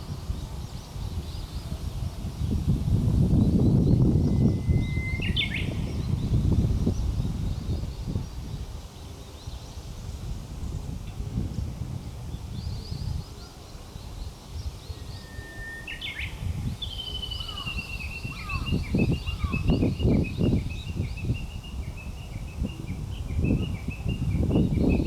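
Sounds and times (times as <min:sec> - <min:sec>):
bird singing: 0:03.3 - 0:08.4, 0:12.5 - 0:25.0.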